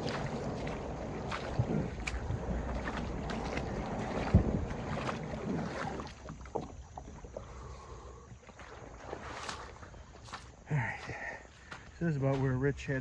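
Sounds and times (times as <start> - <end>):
water sloshing against kayak hull: 0.0 - 12.9.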